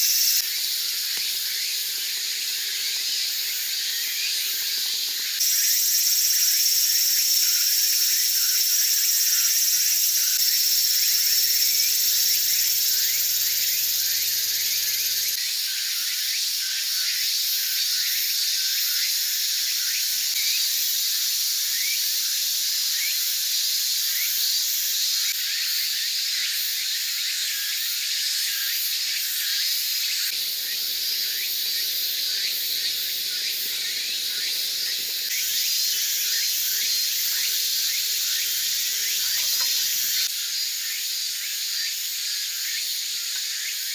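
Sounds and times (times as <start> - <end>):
mushrooms sizzling over fire: 0.4 - 5.3, 10.4 - 15.4, 30.3 - 40.3
fire crackling: 30.4 - 40.3.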